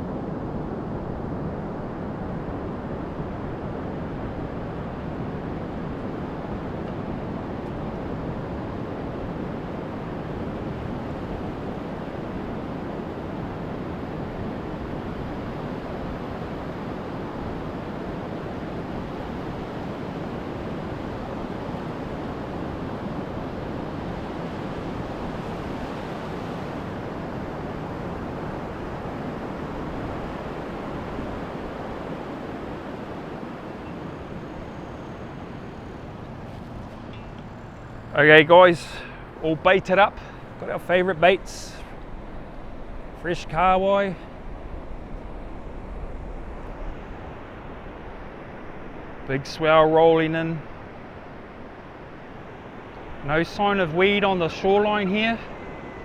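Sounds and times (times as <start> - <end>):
wind noise: 24.8 - 54.2
surf breaking on beach: 30.2 - 56.0.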